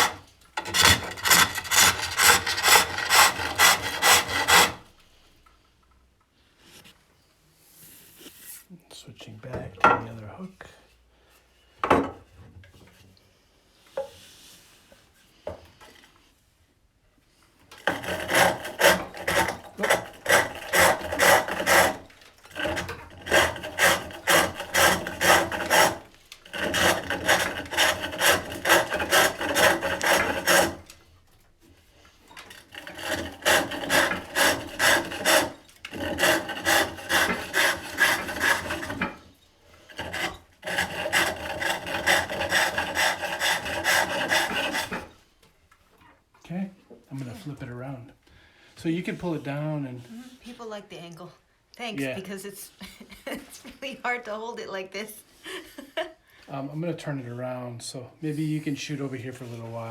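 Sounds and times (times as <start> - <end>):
hook tool scraping wood: 0.0 - 4.9, 17.7 - 31.2, 32.0 - 45.2.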